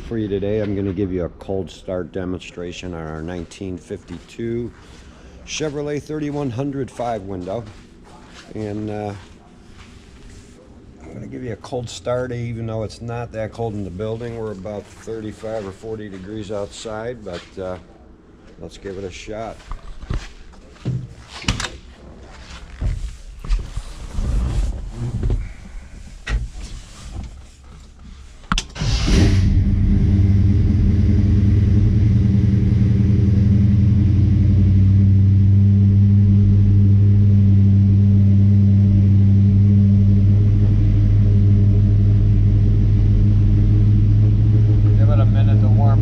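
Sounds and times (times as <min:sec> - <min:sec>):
engine starting and fast idling: 0:28.7 - 0:33.4.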